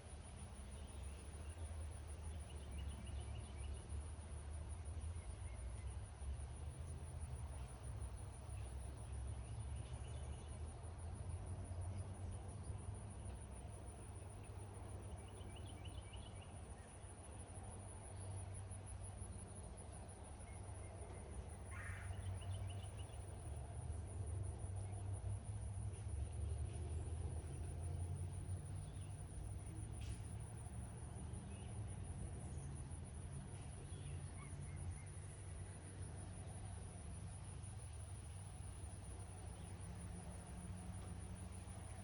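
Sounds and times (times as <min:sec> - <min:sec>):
insects trilling: 0:13.4 - 0:26.8.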